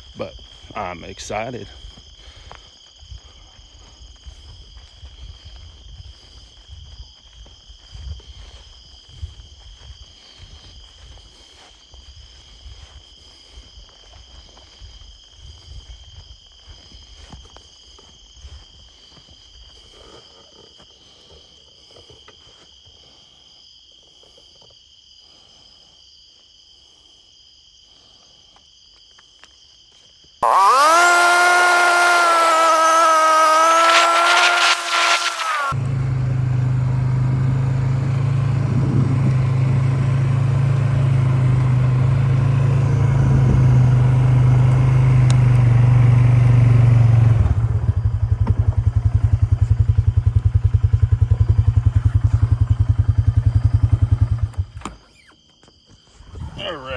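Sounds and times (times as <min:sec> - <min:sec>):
insects droning: 0:00.0 - 0:56.9
loud motor running: 0:30.4 - 0:54.7.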